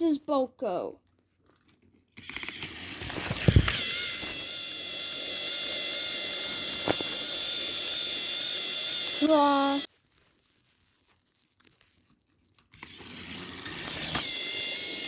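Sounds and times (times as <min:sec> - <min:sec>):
toy train motors whirring: 0:02.2 - 0:09.9, 0:12.7 - 0:15.0.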